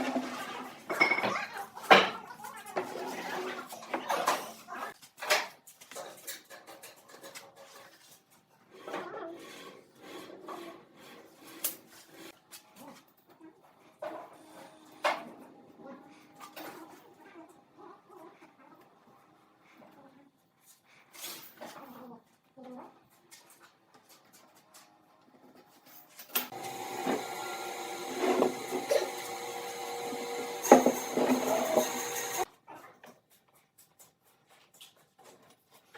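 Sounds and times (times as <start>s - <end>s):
electric power tool running: 26.5s - 32.5s
scraping and rubbing on wood: 26.5s - 32.5s.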